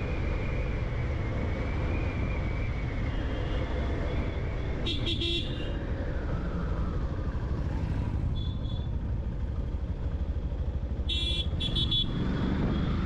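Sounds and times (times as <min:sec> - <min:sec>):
wind and road noise: 0:00.0 - 0:13.0
motorcycle horn honking: 0:11.1 - 0:12.2.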